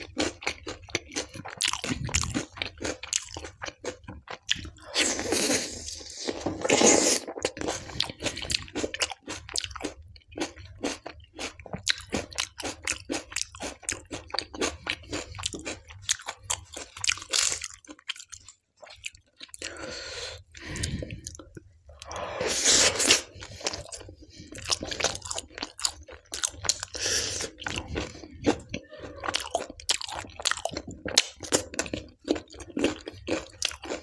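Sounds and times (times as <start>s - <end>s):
wet chewing and smacking: 0.0s - 19.8s, 23.2s - 34.0s.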